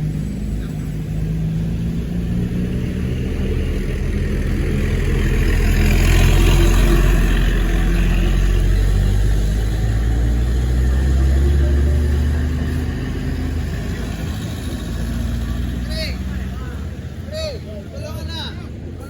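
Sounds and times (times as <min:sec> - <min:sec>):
vehicle engine running: 0:00.0 - 0:17.3
road noise of passing traffic: 0:00.0 - 0:19.0.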